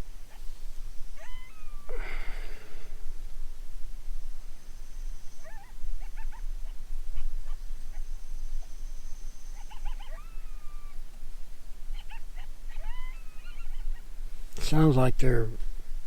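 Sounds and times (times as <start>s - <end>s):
distant coyotes yipping: 0.0s - 3.0s, 4.6s - 14.3s.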